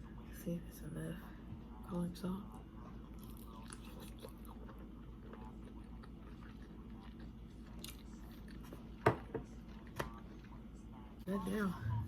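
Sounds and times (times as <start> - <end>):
person chewing food: 2.8 - 11.1.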